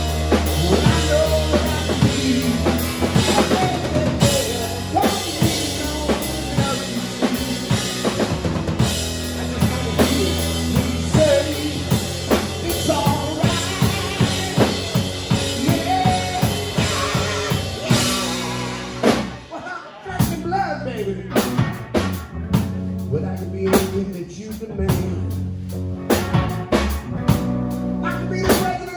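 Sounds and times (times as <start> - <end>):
electric guitar bending notes: 0.0 - 19.6
drum kit beat: 0.0 - 25.4, 26.0 - 28.9
rock band playing: 0.0 - 28.9.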